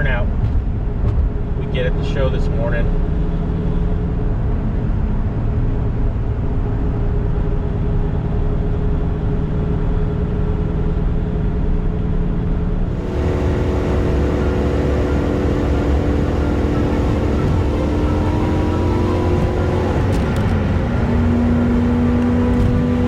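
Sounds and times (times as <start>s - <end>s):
road noise: 0.0s - 8.4s, 12.8s - 23.0s
car engine hum: 12.6s - 23.0s.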